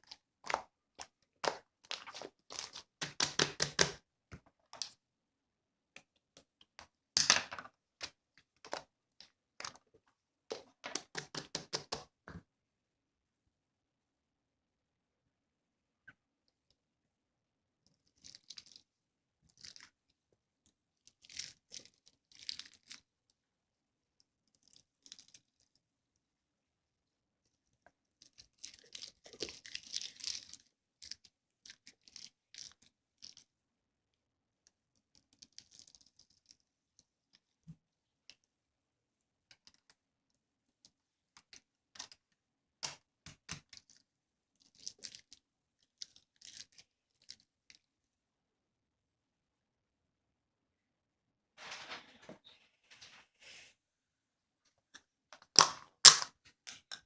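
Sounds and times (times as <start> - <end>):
faint crunching and crinkling: 0.0 - 3.1, 17.8 - 23.4, 24.0 - 26.3, 27.3 - 33.6, 34.5 - 48.1, 51.6 - 53.8.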